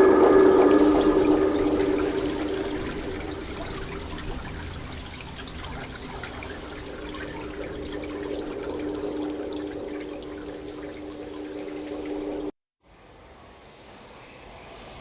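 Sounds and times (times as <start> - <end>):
rain falling: 0.0 - 12.5.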